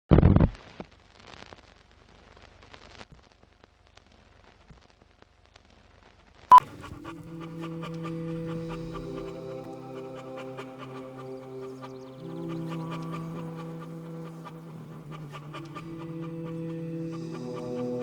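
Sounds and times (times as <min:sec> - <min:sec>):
dog panting: 0:06.5 - 0:18.0.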